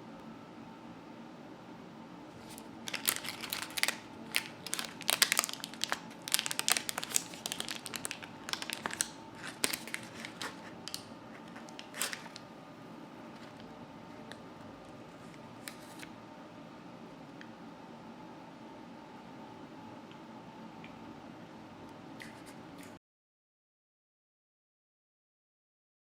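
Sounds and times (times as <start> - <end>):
paper crinkling and tearing: 2.4 - 12.4, 15.6 - 16.1.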